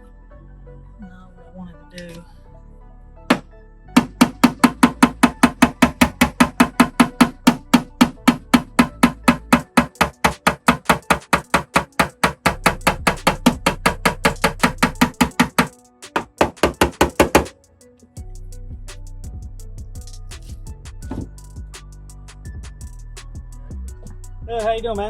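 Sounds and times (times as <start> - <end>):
hammer tapping on sheet metal: 4.0 - 17.6.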